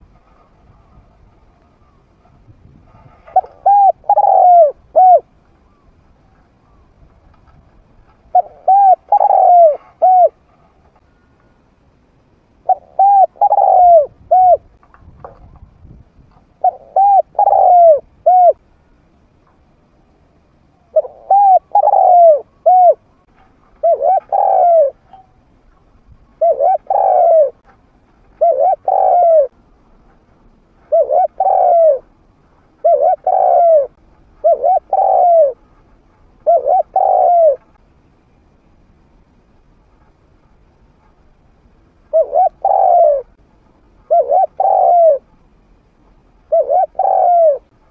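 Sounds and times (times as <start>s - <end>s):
dove cooing: 2.9s - 6.9s, 8.2s - 10.5s, 12.6s - 14.7s, 16.6s - 18.6s, 20.8s - 25.2s, 26.2s - 27.6s, 28.4s - 29.6s, 30.8s - 32.1s, 32.8s - 37.8s, 42.1s - 43.4s, 44.0s - 45.3s, 46.4s - 47.7s.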